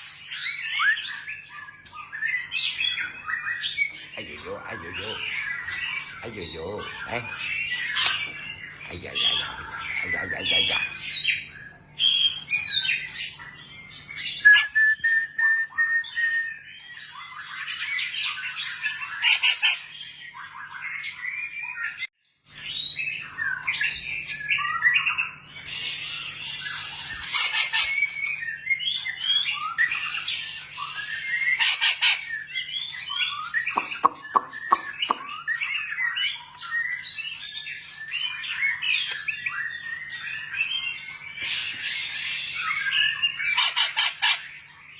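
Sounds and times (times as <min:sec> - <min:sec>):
bird singing whistled phrases: 0:00.3 - 0:22.1, 0:22.7 - 0:44.4.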